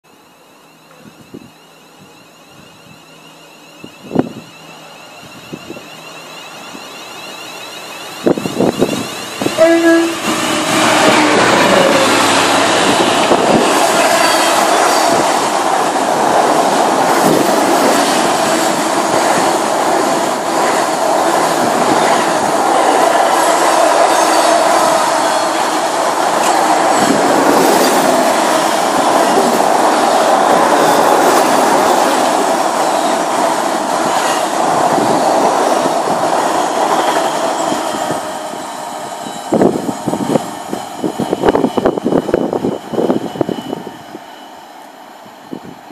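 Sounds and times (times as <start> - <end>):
electric train passing: 0.1 - 45.9
freight train wheels rumbling: 0.3 - 45.9.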